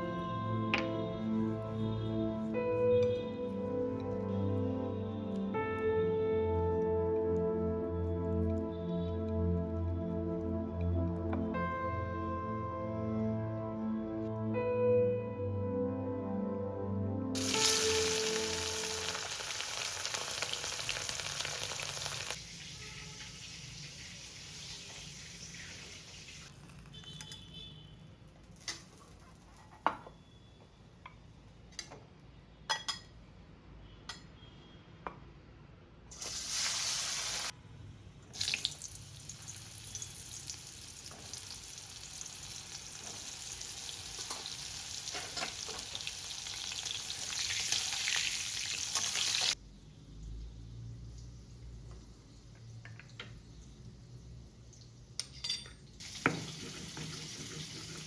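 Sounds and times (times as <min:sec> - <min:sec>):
food sizzling in hot oil: 0:17.4 - 0:26.8, 0:36.1 - 0:37.5, 0:38.4 - 0:49.6, 0:56.0 - 0:58.0.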